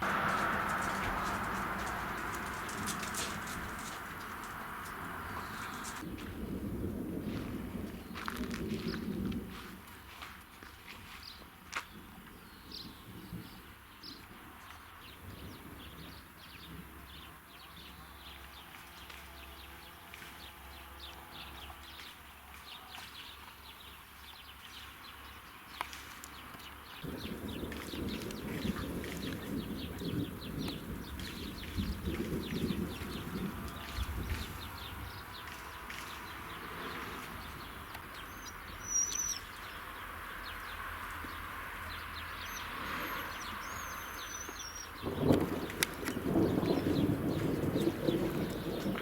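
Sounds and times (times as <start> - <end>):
steady outdoor hiss: 0.0 - 7.2
low rumble: 0.0 - 9.1
songbirds chirping: 0.0 - 9.3, 10.0 - 49.0
songbirds whistling and chirping: 37.2 - 39.8, 42.2 - 48.8.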